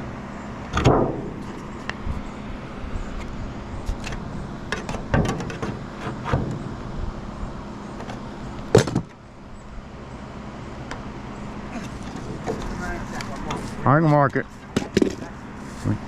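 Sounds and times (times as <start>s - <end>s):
steady mechanical hum: 0.0s - 16.0s
knocks and taps of roofing work: 4.7s - 6.6s.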